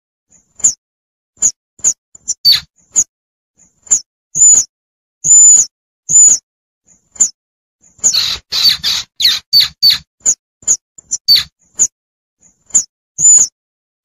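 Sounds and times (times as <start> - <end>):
young squirrel squeaking: 0.6 - 0.8, 1.4 - 3.1, 3.9 - 6.4, 7.2 - 11.9, 12.7 - 13.6.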